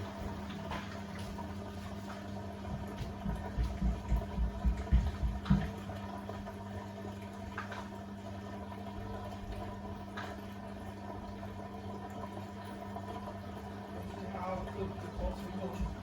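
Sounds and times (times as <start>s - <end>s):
drain pump humming: 0.0s - 16.0s
washing machine drum thuds: 2.2s - 6.0s, 15.0s - 16.0s.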